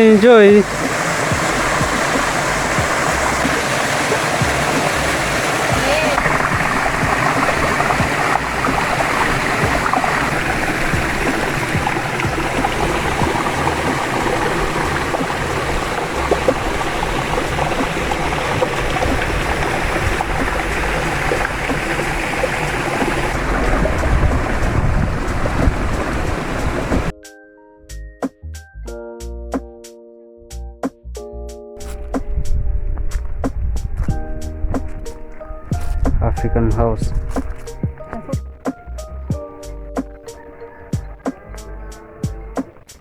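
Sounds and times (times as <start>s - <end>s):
steady rushing outdoor noise: 0.0s - 27.1s.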